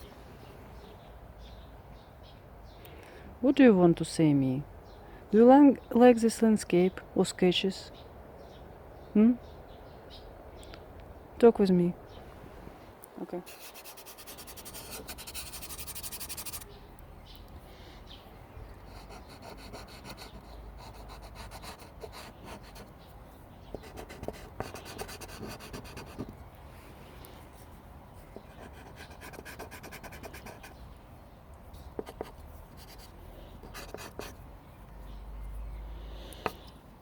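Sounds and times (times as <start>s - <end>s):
charcoal scratching on paper: 13.5s - 16.7s, 18.9s - 22.9s, 23.7s - 26.3s, 28.3s - 30.8s, 32.0s - 34.4s.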